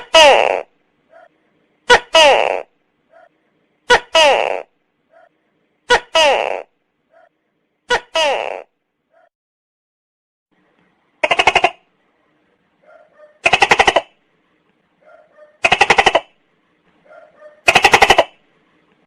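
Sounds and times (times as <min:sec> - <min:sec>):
gecko calling: 0:11.2 - 0:11.9, 0:12.9 - 0:14.2, 0:15.1 - 0:16.4, 0:17.1 - 0:18.4.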